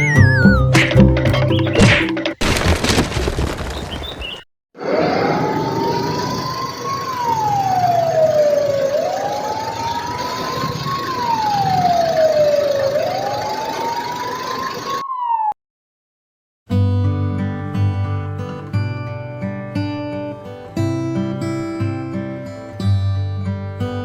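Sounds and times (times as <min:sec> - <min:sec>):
wailing siren: 0:05.2 - 0:15.6.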